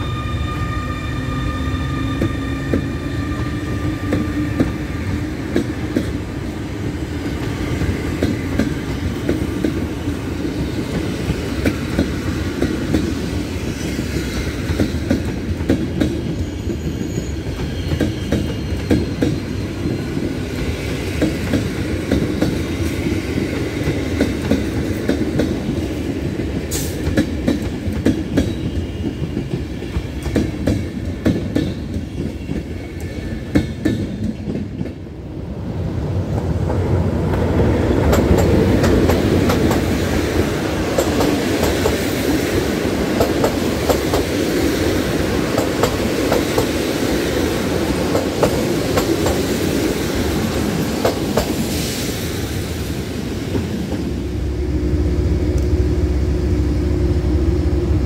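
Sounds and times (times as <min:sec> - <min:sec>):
train coaches rumbling: 0:00.0 - 0:58.0
wheel squeal: 0:16.3 - 0:19.7.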